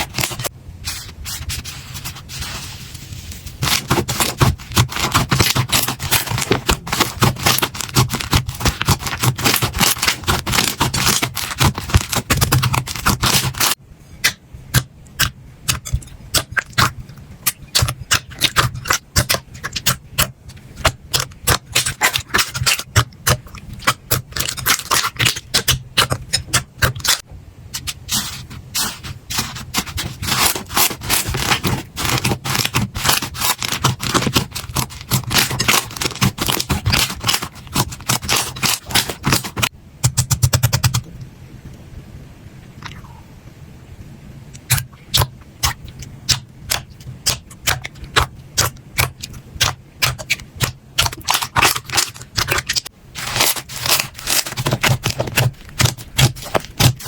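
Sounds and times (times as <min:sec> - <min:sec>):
slime squeezed crackling and popping: 0:44.7 - 0:57.0.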